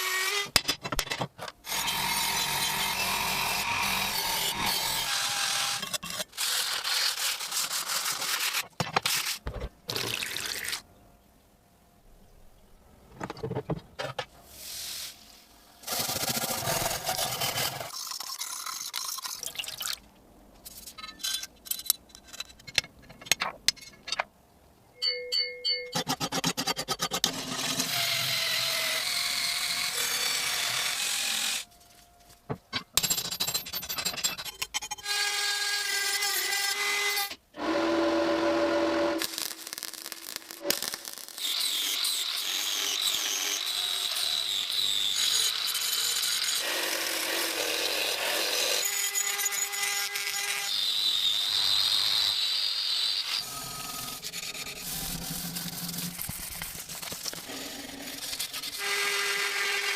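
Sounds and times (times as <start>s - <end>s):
power tools grinding metal: 1.7s - 6.7s, 40.6s - 59.9s.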